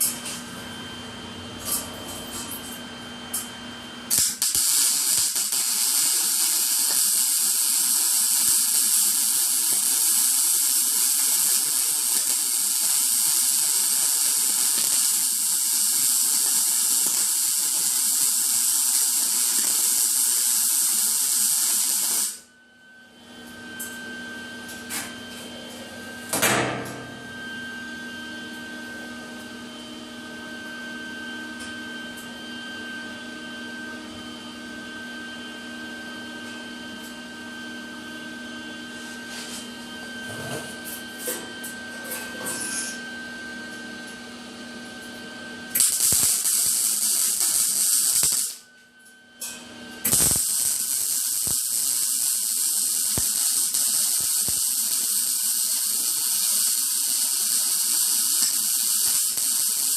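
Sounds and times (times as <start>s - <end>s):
welding arc hissing: 4.1s - 22.4s, 45.8s - 48.6s, 50.0s - 59.9s.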